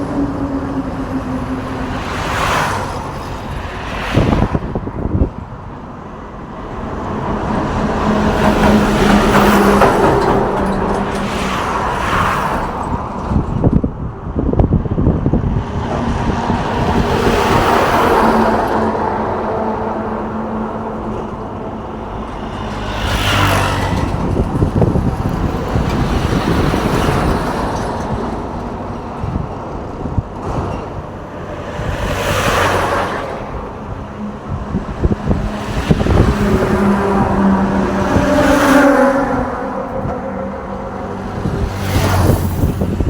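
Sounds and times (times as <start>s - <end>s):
vehicles passing: 0.0s - 43.0s
steady engine drone: 14.0s - 43.0s.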